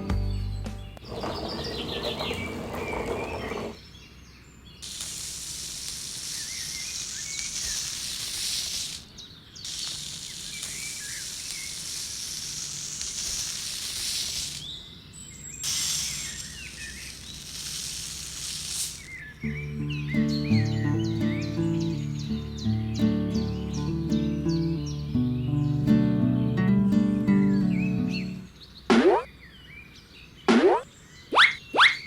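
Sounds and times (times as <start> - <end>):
birds chirping: 0.0 - 5.2, 14.5 - 17.8, 19.0 - 32.0
steady high hiss: 4.7 - 19.6.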